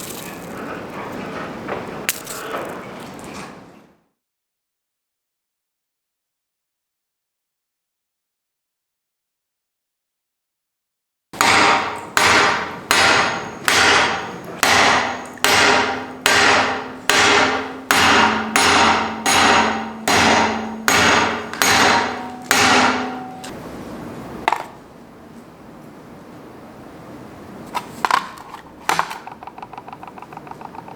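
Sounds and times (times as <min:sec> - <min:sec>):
anvil ringing: 0:11.4 - 0:23.5
hammer striking anvil: 0:11.4 - 0:23.6.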